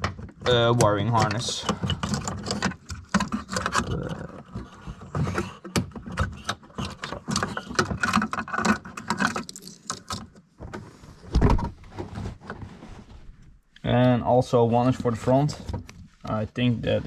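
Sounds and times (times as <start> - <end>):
loud thump: 11.3 - 11.8.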